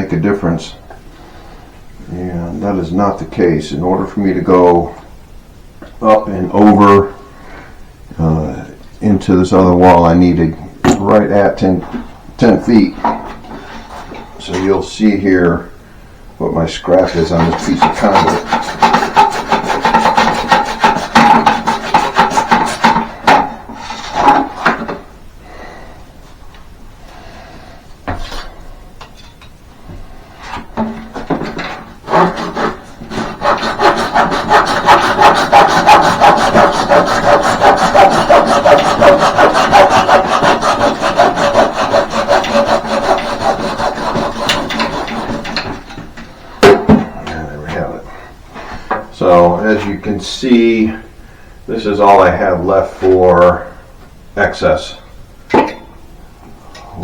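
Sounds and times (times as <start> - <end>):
hand saw cutting conduit: 17.0 - 24.9, 30.8 - 46.2.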